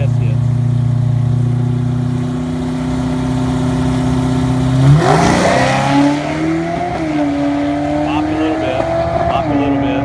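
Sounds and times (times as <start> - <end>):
drag car engine revving: 0.0 - 10.0.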